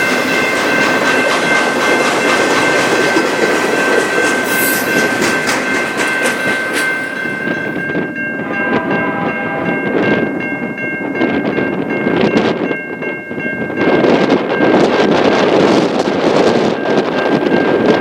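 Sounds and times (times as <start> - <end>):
train wheels clattering on rails: 0.0 - 8.2, 13.6 - 18.0
high ringing tone: 2.6 - 14.9.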